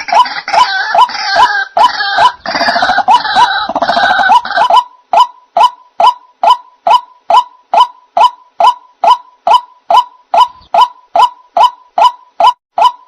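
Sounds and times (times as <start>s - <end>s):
waterhen call repeated: 0.0s - 13.0s.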